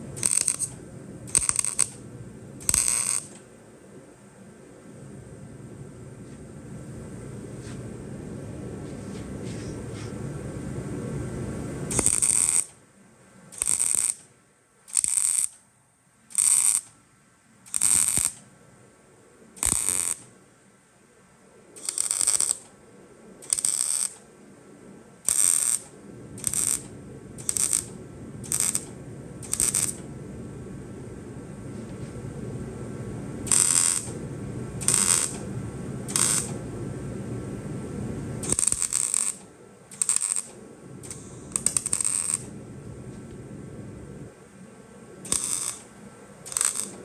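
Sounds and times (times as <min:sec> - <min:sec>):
arc welder crackling: 0:00.0 - 0:04.0, 0:09.3 - 0:12.8, 0:13.4 - 0:15.7, 0:16.3 - 0:17.0, 0:17.6 - 0:18.6, 0:19.6 - 0:20.4, 0:21.7 - 0:22.8, 0:23.4 - 0:47.0
low steady hum: 0:00.0 - 0:13.6, 0:18.4 - 0:47.0.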